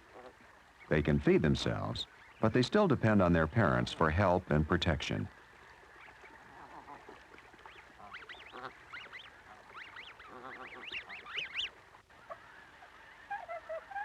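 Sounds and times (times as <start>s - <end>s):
young birds peeping: 5.1s - 14.0s.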